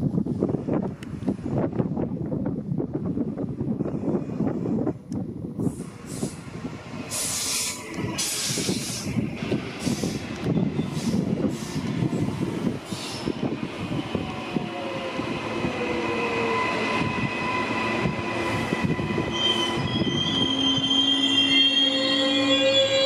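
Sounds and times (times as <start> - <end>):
train wheels rumbling on track: 0.0 - 23.0
wheels squealing: 16.1 - 23.0.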